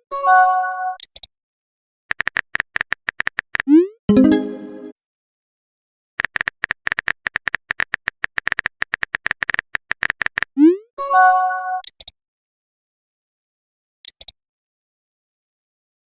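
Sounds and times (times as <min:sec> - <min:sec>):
short multi-tone chime: 0:04.1 - 0:04.9
phone keyboard typing clicks: 0:06.2 - 0:10.5.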